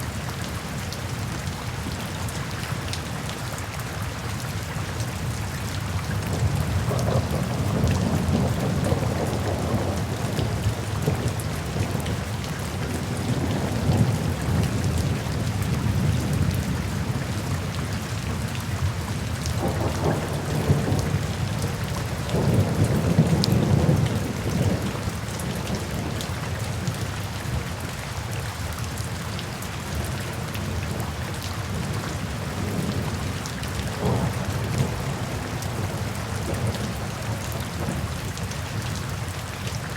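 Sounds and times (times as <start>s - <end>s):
rain falling: 0.0s - 39.9s
rolls of thunder: 6.3s - 17.8s, 19.6s - 26.2s, 31.7s - 38.2s.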